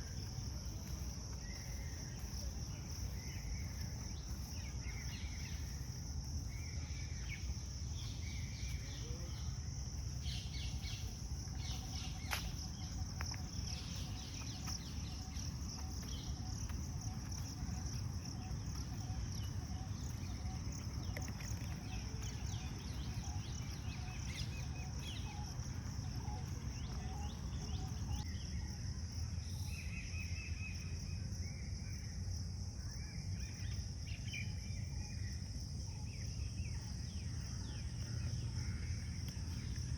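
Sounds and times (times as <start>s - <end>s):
high-pitched insect chorus: 0.0s - 39.9s
bird chirps: 1.3s - 28.7s.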